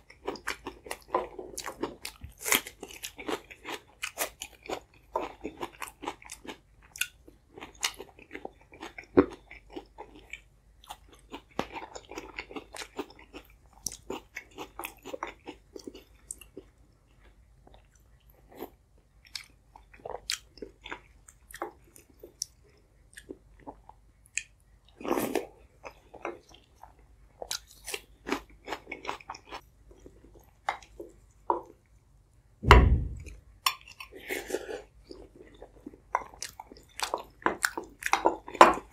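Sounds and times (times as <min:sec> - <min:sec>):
chewing soft wet food: 0:00.0 - 0:32.2, 0:33.3 - 0:38.9
low thump: 0:32.6 - 0:33.4.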